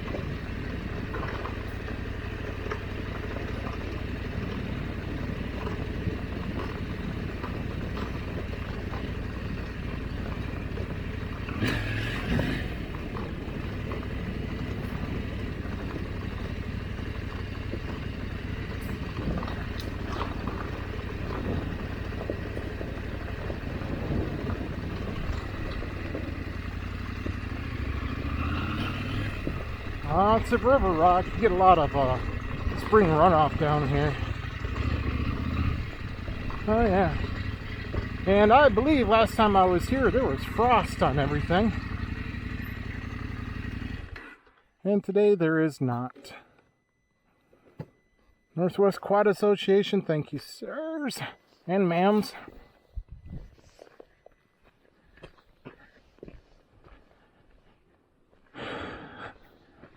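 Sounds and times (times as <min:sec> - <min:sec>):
motorcycle engine running: 0:00.0 - 0:44.6
clatter over rocky ground: 0:00.0 - 0:44.7, 0:52.2 - 0:58.6.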